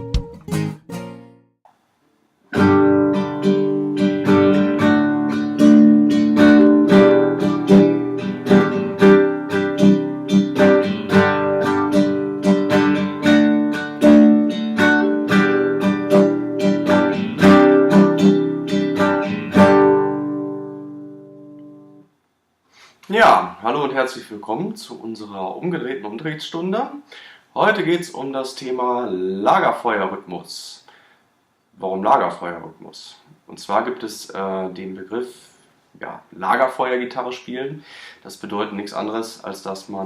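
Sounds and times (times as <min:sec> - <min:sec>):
acoustic guitar strumming: 0:00.0 - 0:01.6, 0:02.5 - 0:22.1.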